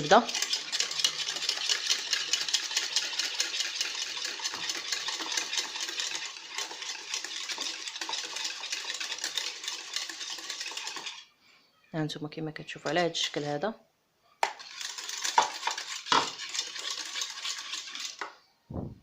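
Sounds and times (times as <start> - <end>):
utensil scraping saucepan: 0.0 - 11.3, 14.4 - 18.3.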